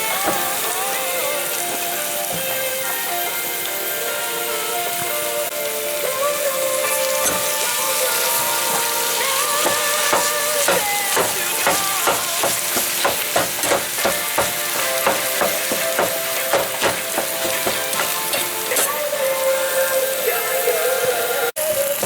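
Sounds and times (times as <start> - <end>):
meat sizzling in a pan: 0.0 - 22.0
music: 0.0 - 22.0
spoon scraping a pan: 6.8 - 19.0.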